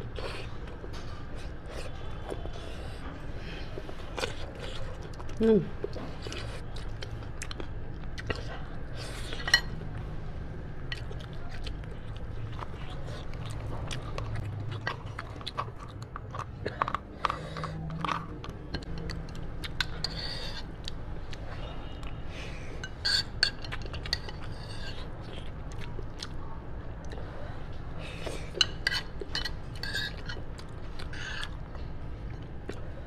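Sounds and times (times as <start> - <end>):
wet chewing and lip smacking: 3.8 - 9.5, 10.9 - 22.2, 23.7 - 27.2.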